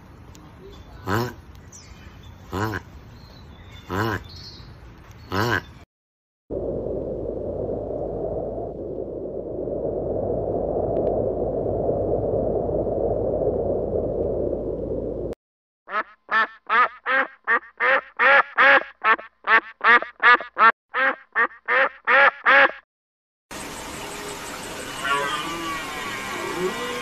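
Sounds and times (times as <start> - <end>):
duck quacking: 2.5 - 2.8, 5.3 - 5.7, 15.9 - 22.8.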